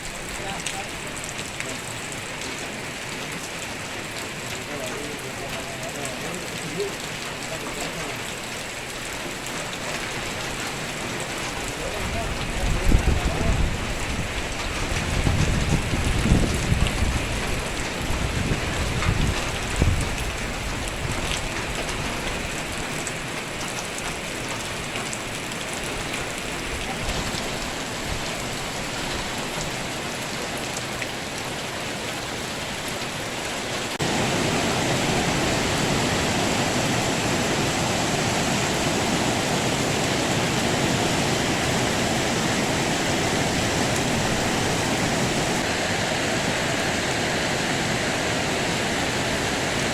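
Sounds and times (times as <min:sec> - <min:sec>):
rain falling: 0:00.0 - 0:49.9.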